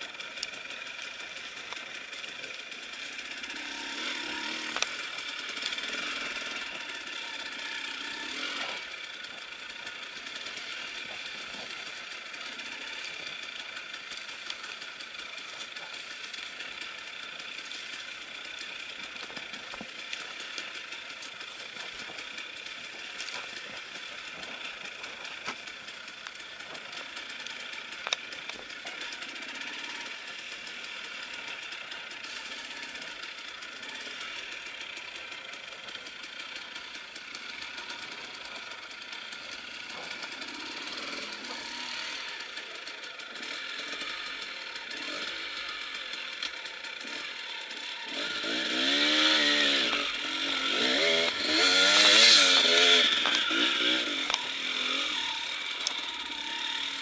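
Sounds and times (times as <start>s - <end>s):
motorcycle engine running: 0.0s - 57.0s
sharp clicks: 4.7s - 5.0s.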